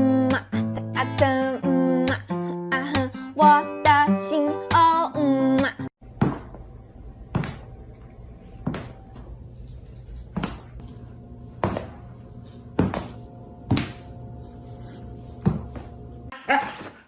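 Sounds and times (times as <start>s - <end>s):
steady low hum: 6.0s - 16.3s.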